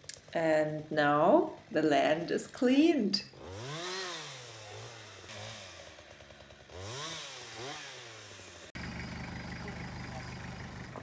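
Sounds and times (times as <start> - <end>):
chainsaw engine revving: 3.3 - 11.0.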